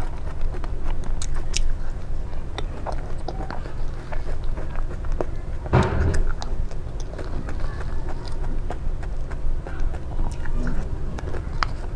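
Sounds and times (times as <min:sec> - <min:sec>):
biting and chewing: 0:00.0 - 0:11.9
steady low rumble: 0:03.8 - 0:11.9.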